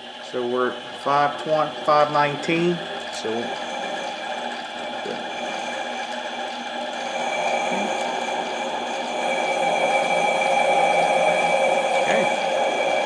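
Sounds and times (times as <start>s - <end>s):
lathe motor and gears whine: 0.0s - 13.0s
high held tones: 6.9s - 13.0s.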